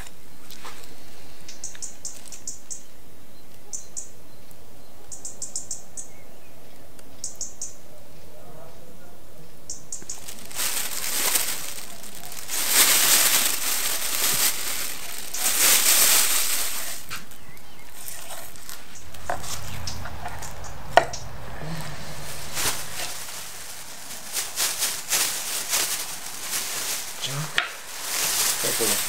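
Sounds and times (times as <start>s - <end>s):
plastic bag rustling: 2.0s - 2.5s, 10.1s - 29.0s.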